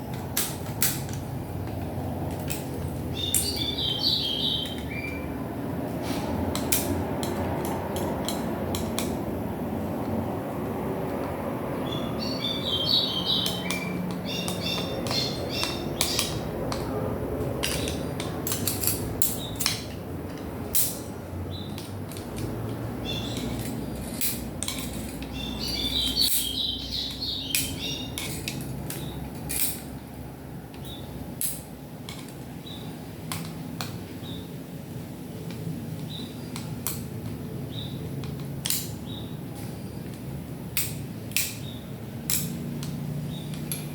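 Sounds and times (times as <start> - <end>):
bird chirping: 3.1 - 5.4, 11.8 - 16.6, 23.0 - 24.0, 25.3 - 29.2
small metal parts clinking: 17.6 - 21.1, 21.7 - 30.0.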